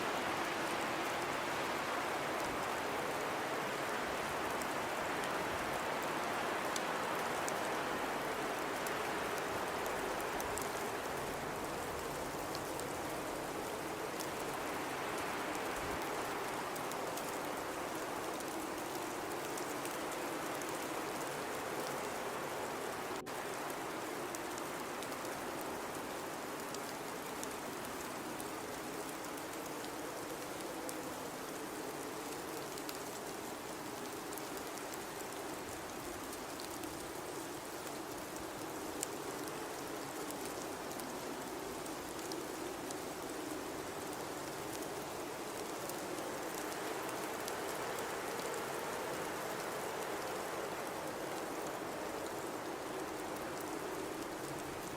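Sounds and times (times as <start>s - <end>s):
blizzard wind blowing: 0.0s - 54.9s.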